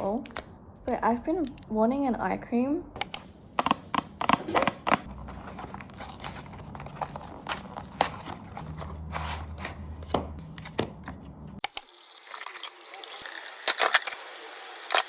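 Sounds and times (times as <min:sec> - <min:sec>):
low steady hum: 0:00.0 - 0:11.6.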